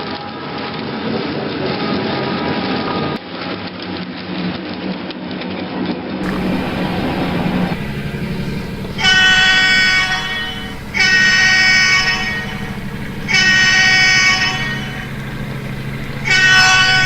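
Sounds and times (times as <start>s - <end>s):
diesel engines running: 6.2s - 17.0s
model locomotive horn: 6.2s - 17.0s.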